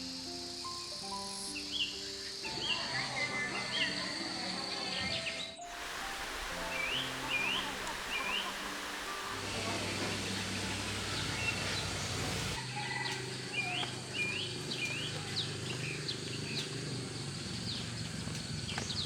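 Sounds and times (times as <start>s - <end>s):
birds chirping: 5.1s - 12.6s.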